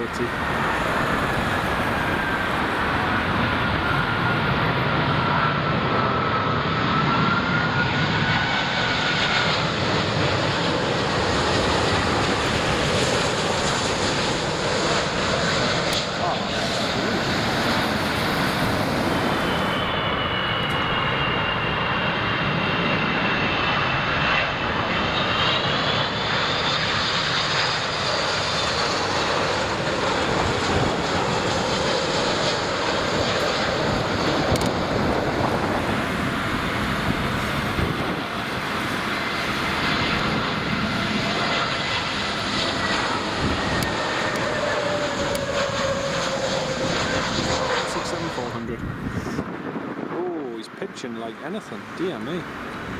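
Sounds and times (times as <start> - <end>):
jet engines passing overhead: 0.0 - 52.9
whining engine tones: 28.9 - 49.8.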